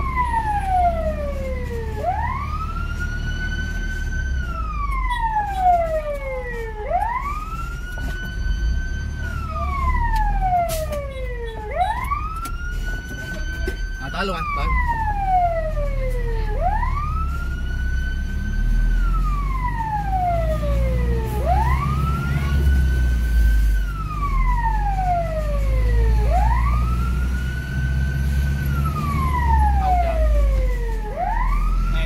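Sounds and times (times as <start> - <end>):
fire engine siren wailing: 0.0 - 32.0
low rumble of moving truck: 0.0 - 32.0.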